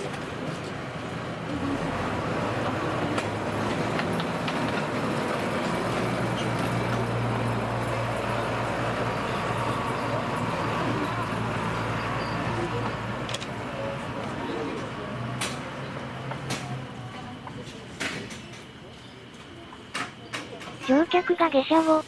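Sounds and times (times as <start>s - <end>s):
diesel locomotive engine humming: 0.3s - 17.5s.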